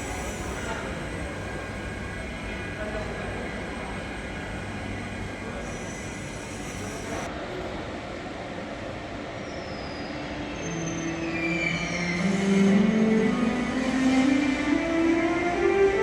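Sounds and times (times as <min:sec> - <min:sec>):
train wheels rumbling: 0:00.0 - 0:07.3
high-pitched wheel squeal: 0:05.6 - 0:07.3, 0:09.5 - 0:12.8.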